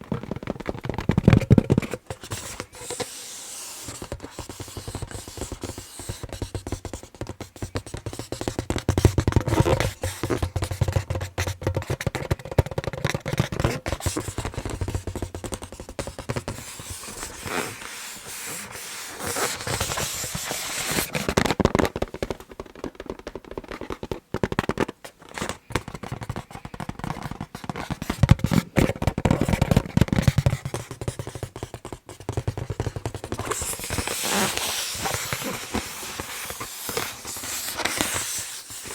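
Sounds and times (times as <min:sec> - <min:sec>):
fingers tapping on balloon: 0:00.0 - 0:38.9
fingernails scratching balloon: 0:01.7 - 0:21.6, 0:26.1 - 0:38.9.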